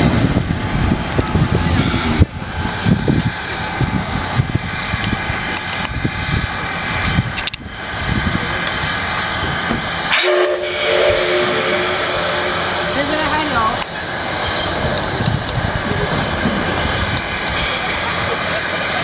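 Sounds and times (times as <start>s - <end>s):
steam locomotive whistle: 10.1s - 15.5s.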